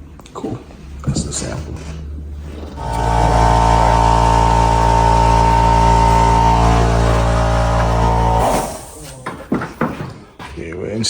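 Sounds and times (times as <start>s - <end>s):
air compressor humming: 2.7s - 9.3s.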